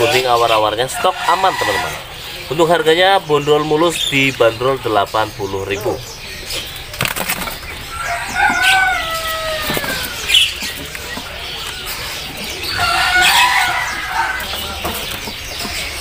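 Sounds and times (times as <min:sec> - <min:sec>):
knocks and rustles from cages: 0:06.5 - 0:16.0.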